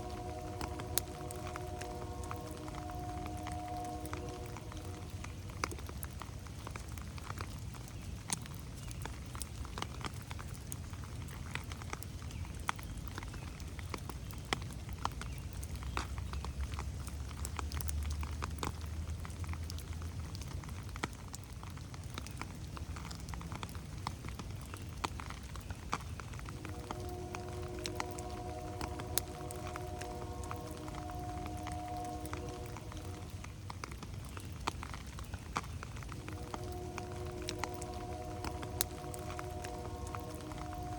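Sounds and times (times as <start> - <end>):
low rumble: 0.0 - 7.1, 26.4 - 34.3, 35.8 - 40.9
raindrops pattering on leaves: 0.0 - 40.9
steady rain hiss: 0.0 - 40.9.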